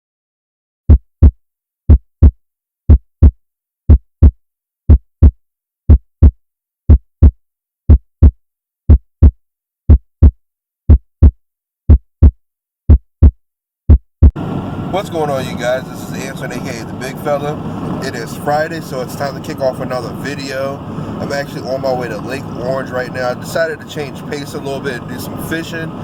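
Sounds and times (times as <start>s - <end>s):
heartbeat thumps: 0.9s - 14.4s.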